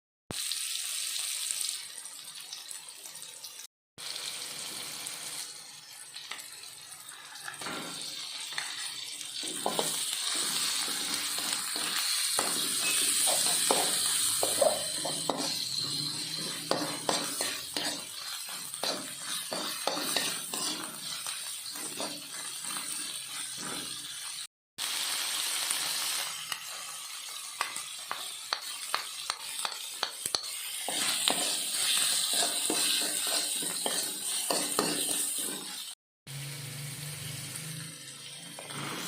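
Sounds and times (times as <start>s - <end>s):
food sizzling in a pan: 0.3s - 39.0s
spatula clinking and scraping pan: 5.8s - 24.5s, 26.6s - 36.0s.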